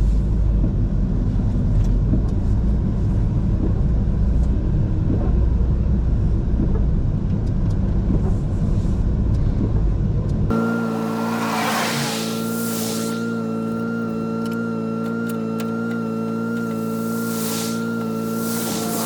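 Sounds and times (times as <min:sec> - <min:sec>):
truck road and engine rumble: 0:00.0 - 0:19.0
multi-pitched hum: 0:03.3 - 0:19.0
hiss: 0:10.8 - 0:13.7, 0:16.8 - 0:19.0.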